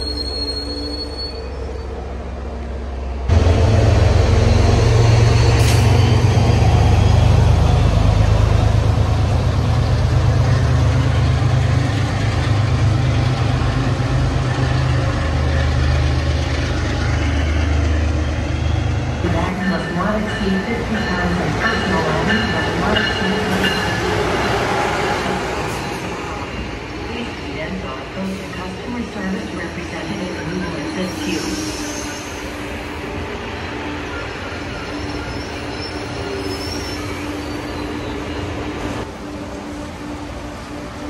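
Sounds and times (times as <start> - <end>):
high wheel squeal: 0.0 - 1.9, 34.1 - 38.7
diesel locomotive engine drone: 0.0 - 41.0
train coaches rolling: 0.0 - 41.0.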